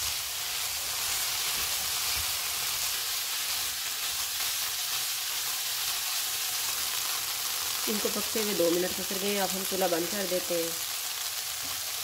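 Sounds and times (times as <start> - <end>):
food frying in hot oil: 0.0 - 12.0.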